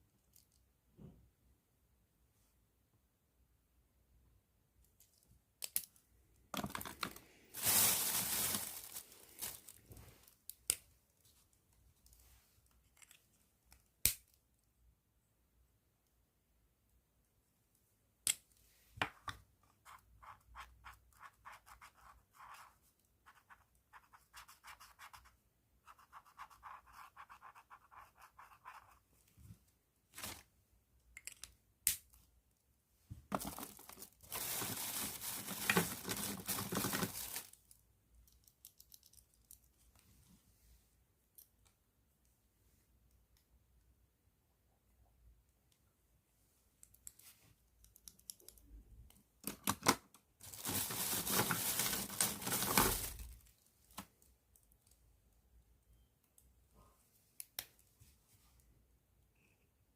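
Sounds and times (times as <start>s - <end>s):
pen scratching on paper: 23.3s - 29.0s.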